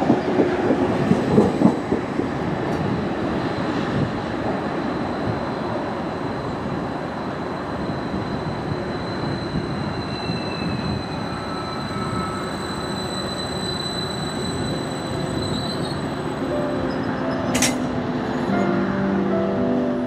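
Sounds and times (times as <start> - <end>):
train wheels rumbling: 0.0 - 19.2
high squeal: 7.4 - 18.6.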